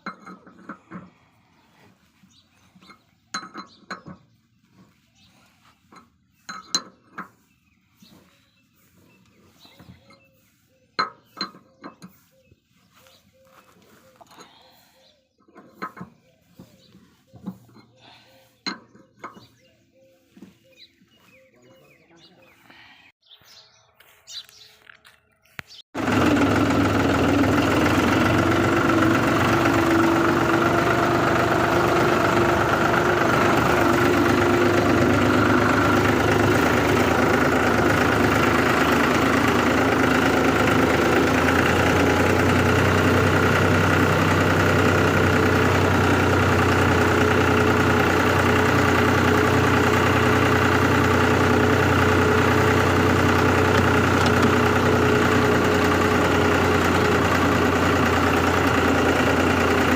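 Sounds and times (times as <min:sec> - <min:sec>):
tractor diesel engine idling: 0:26.0 - 0:59.9.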